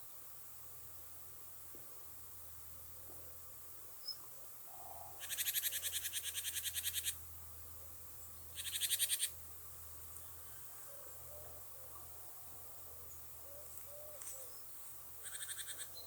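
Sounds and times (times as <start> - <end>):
rapid rattling animal call: 5.0 - 7.2, 8.6 - 9.4, 15.2 - 16.0.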